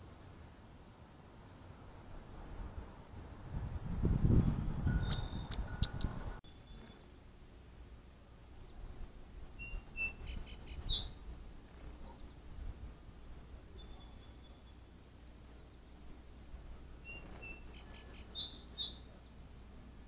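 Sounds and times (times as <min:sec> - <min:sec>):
small birds chirping: 0:00.0 - 0:00.8, 0:04.5 - 0:07.3, 0:08.3 - 0:20.0.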